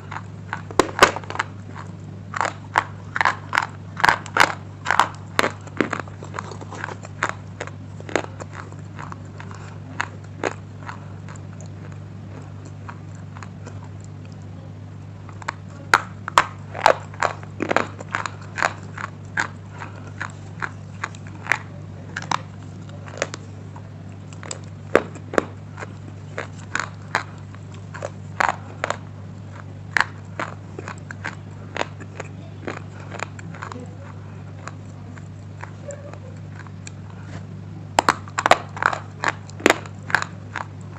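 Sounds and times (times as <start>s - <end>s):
low electrical hum: 0.0s - 40.9s
crunching slate pieces: 15.4s - 23.4s.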